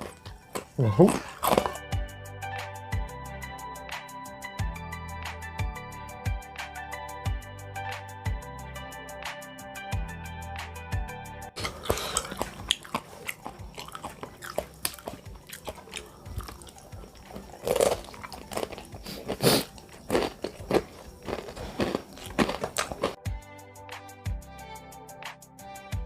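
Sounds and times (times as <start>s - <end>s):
biting chewing and crunching: 0.0s - 1.8s, 11.6s - 23.2s.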